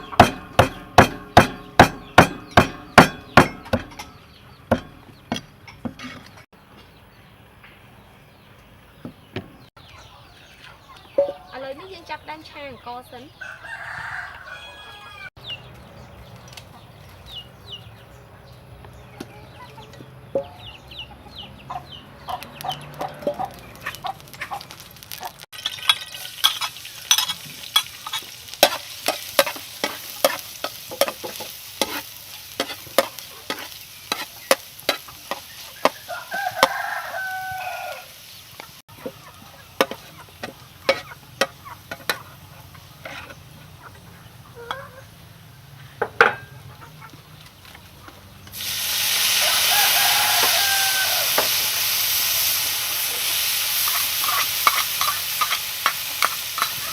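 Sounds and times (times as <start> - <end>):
rooster crowing: 13.4 - 15.4, 35.9 - 38.2, 49.2 - 51.8
light frying hiss: 23.9 - 43.8, 47.4 - 56.9
spatula scraping rice in pan: 26.2 - 36.0, 39.8 - 42.3, 43.0 - 43.5, 53.8 - 56.9.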